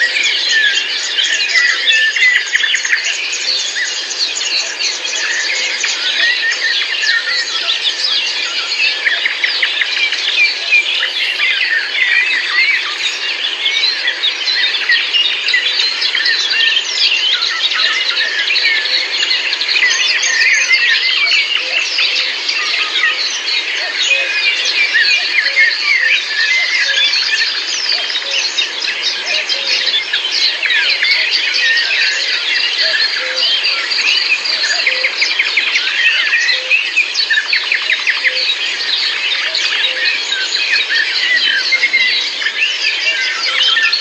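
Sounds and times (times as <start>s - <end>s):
songbirds chorus: 0.0s - 44.0s.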